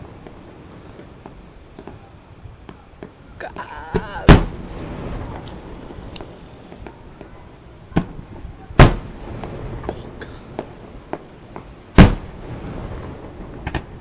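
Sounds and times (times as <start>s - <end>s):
fireworks booming: 0.0s - 14.0s
small firework cracks: 3.9s - 14.0s.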